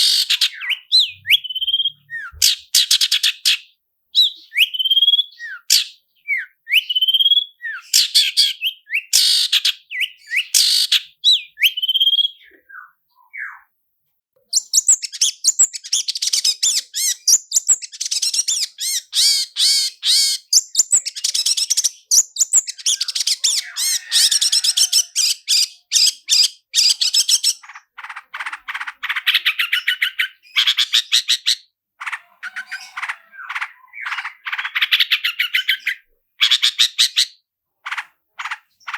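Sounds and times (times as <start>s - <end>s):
bird rapid rasping trills: 0.0s - 3.6s, 14.8s - 37.3s, 37.9s - 38.9s
mimicked bird calls: 0.0s - 13.7s, 14.5s - 38.9s.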